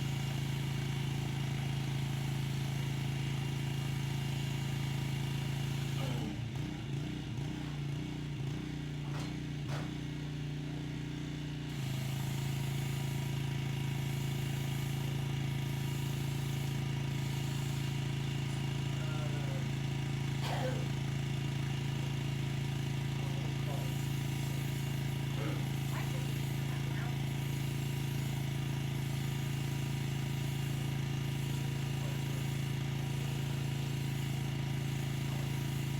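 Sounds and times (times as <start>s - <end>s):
pressure washer engine drone: 0.0s - 35.9s
water spray hissing: 14.0s - 18.7s, 23.5s - 35.9s.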